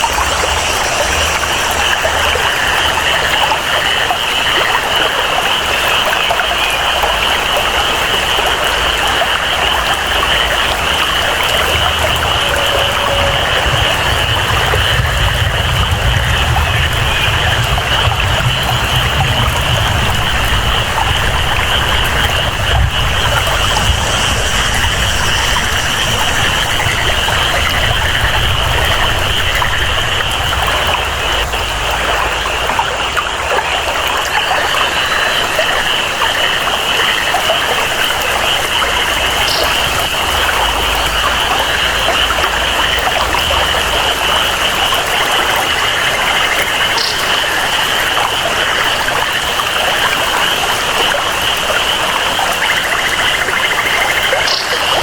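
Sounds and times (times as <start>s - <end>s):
low rumble: 0.0s - 3.7s, 7.0s - 34.3s
frogs or insects chorus: 0.0s - 55.0s
rain and flowing water: 0.0s - 55.0s.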